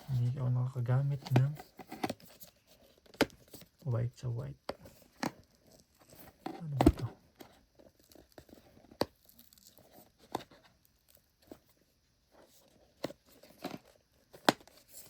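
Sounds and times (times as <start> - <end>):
packaging rustling and scraping: 0.0 - 3.8, 4.8 - 11.8, 12.4 - 15.0.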